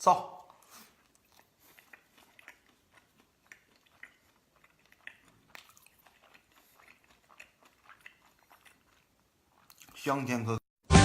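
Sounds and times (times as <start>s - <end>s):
chewing and biting food: 0.2s - 10.2s.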